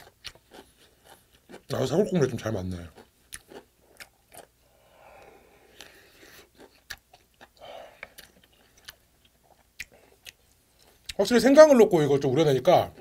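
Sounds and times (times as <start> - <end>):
soft wet chewing: 0.0 - 11.3
lip and tongue clicks: 6.6 - 11.2.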